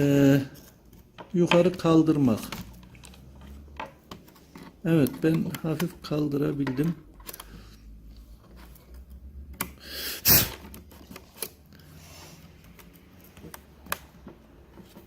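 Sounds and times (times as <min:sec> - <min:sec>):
loud breathy burst: 0:09.8 - 0:10.6.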